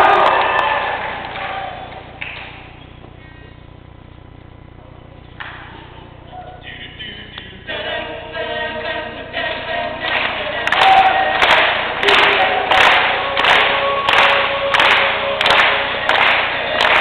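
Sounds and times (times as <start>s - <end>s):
male a cappella group singing: 6.6s - 17.0s.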